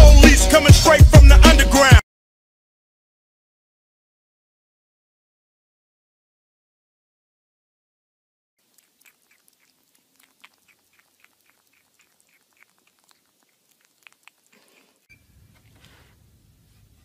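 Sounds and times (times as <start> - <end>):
teeth clicking on plastic bowl: 8.7 - 15.0.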